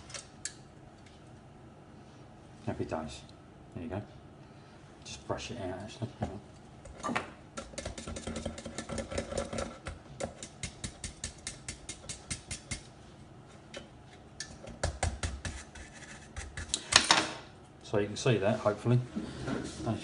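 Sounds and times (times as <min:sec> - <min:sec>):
brush scrubbing: 0:15.3 - 0:16.7.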